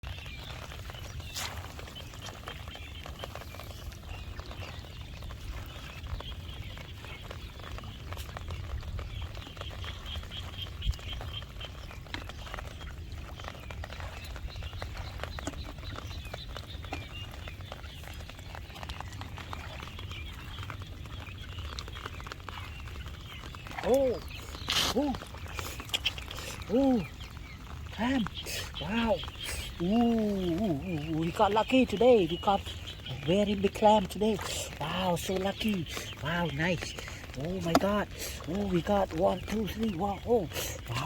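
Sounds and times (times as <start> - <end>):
frogs chirping: 13.8 - 41.0.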